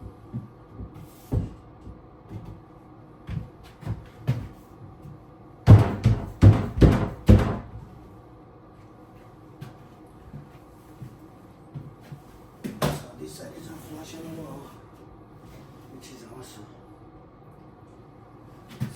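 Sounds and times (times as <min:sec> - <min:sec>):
knocks on wooden cabinet: 0:05.7 - 0:07.8.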